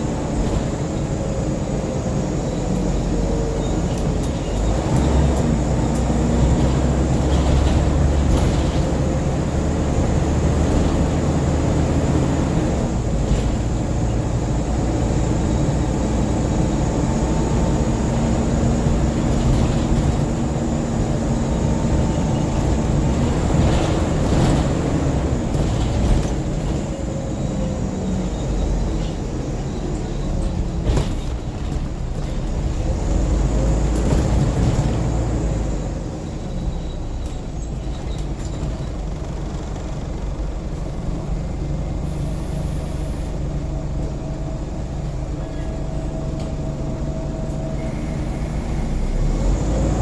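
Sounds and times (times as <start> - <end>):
bus engine running: 0.0 - 50.0
road noise: 0.0 - 50.0.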